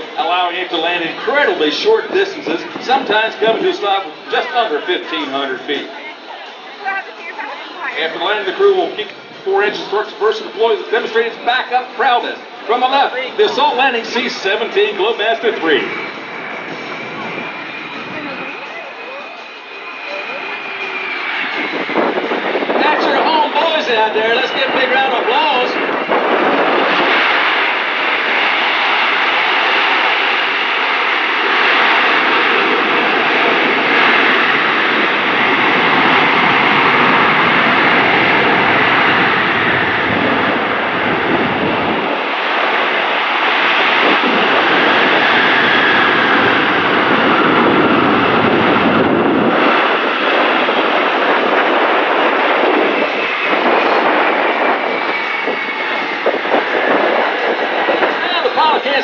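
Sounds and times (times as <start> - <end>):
jet engines roaring in reverse thrust: 0.0 - 59.0.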